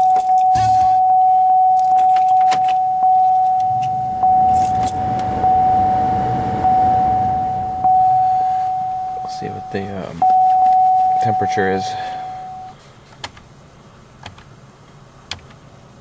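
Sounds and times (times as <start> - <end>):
keys jingling: 0.0 - 0.6, 1.8 - 5.2
car warning chime: 0.0 - 12.8.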